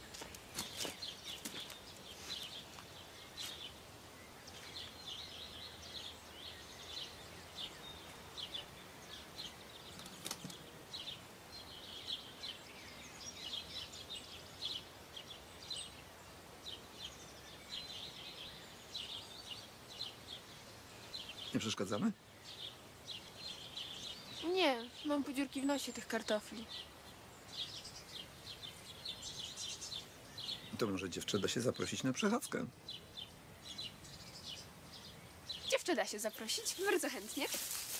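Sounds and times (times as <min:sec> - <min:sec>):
small birds chirping: 0:00.0 - 0:37.9.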